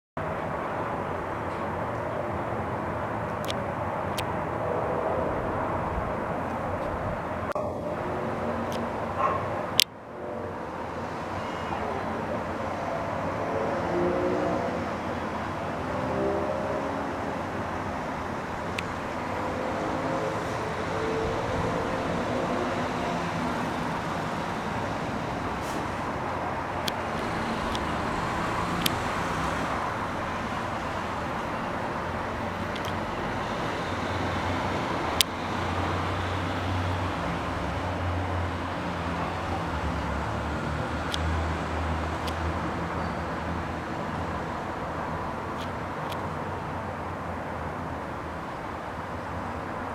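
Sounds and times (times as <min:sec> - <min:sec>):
distant road traffic rumble: 0:00.2 - 0:49.9
sharp clicks: 0:26.8 - 0:29.7, 0:32.6 - 0:33.1.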